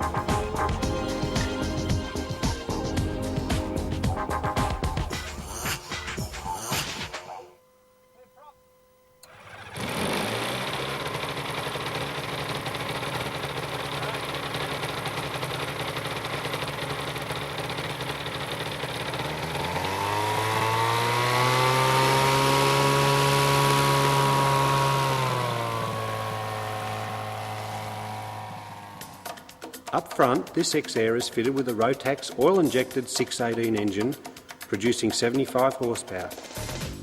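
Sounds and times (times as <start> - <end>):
aircraft engine running: 9.2 - 31.6.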